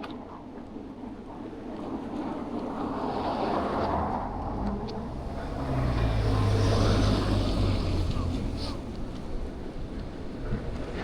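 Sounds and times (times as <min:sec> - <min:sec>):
heavy vehicle engine hum: 0:04.0 - 0:11.0.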